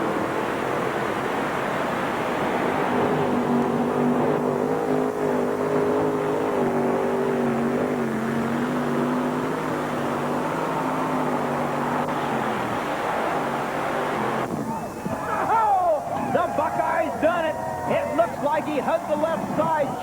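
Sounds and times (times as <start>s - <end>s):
tractor engine at high revs: 0.0s - 14.7s.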